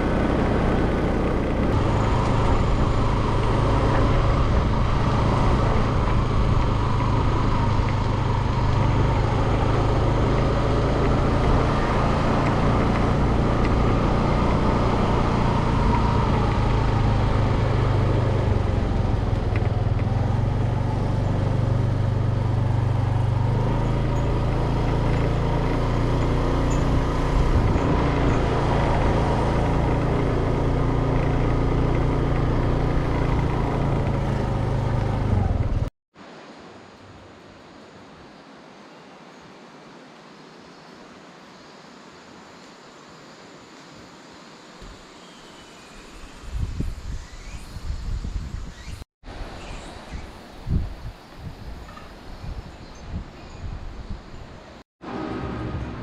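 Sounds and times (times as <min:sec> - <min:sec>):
vehicle engine hum: 0:00.0 - 0:35.9, 0:54.6 - 0:56.0
road noise: 0:00.0 - 0:56.0.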